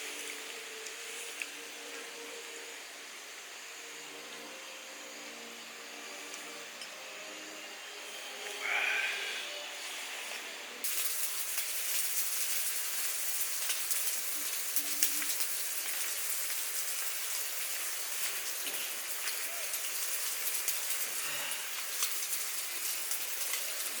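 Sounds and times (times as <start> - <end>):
rain pattering: 10.8 - 24.0.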